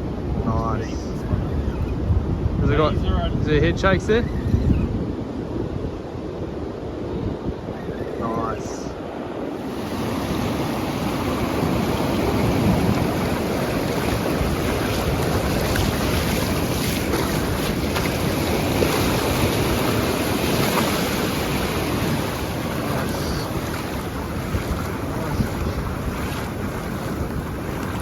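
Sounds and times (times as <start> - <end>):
wind on microphone: 0.0 - 28.0
waves washing on shore: 5.1 - 28.0.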